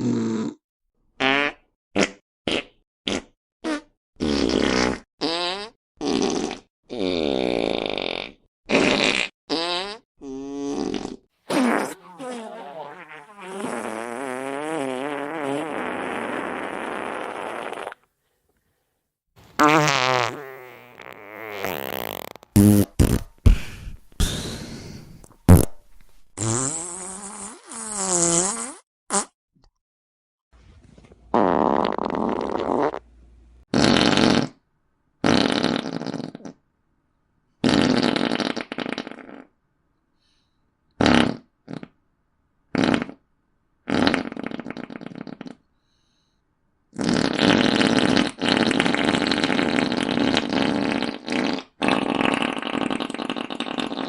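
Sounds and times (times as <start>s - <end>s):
fart sound effects: 1.2s - 18.0s, 19.6s - 29.3s, 31.3s - 33.0s, 33.7s - 34.6s, 35.2s - 36.6s, 37.6s - 39.5s, 41.0s - 42.0s, 42.7s - 43.2s, 43.9s - 45.6s, 47.0s - 54.0s.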